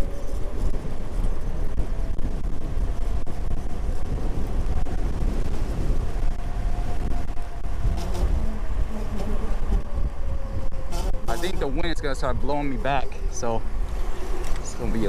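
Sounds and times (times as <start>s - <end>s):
wind buffeting microphone: 0.0s - 15.0s
electric motor whine: 13.2s - 15.0s.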